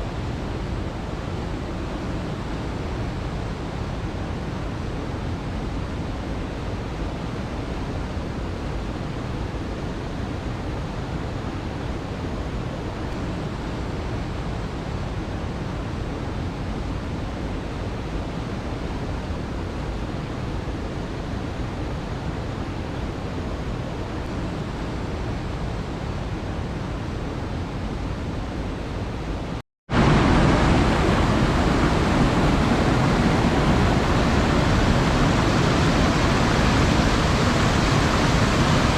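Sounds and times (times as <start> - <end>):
waterfall rushing: 29.9 - 38.9.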